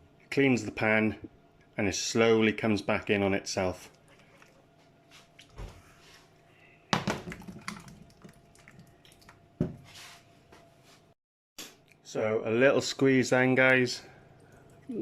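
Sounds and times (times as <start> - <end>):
faint steady hum: 11.8 - 15.0.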